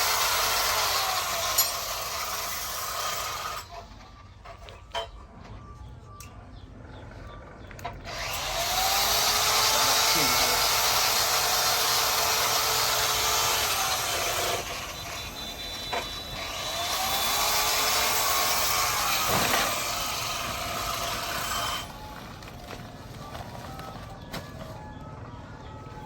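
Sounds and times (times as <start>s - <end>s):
power tool grinding metal: 0.0s - 3.9s, 8.0s - 22.1s.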